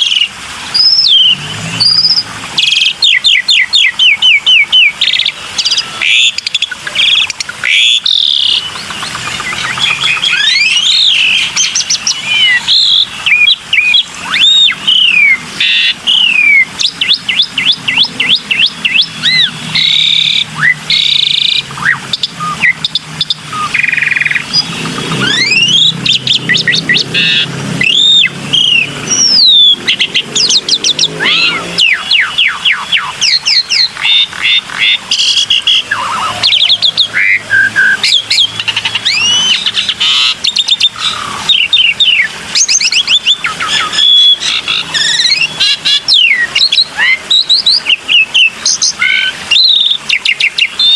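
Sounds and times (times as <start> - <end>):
bird singing whistles and trills: 0.0 - 50.9.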